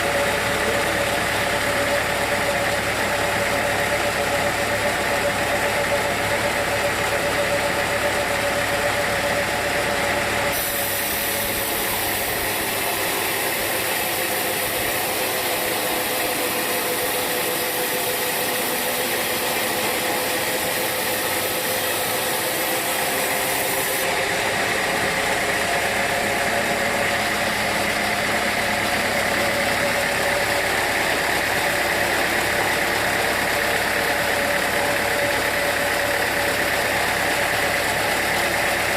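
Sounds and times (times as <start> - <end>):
sawmill machinery humming: 0.0 - 38.9
high hiss: 10.6 - 16.0.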